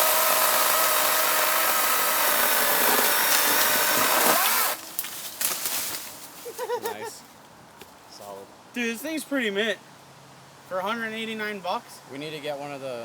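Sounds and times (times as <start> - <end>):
electric chainsaw cutting wood: 0.0 - 4.8
wood cracking and knocking: 0.1 - 5.7.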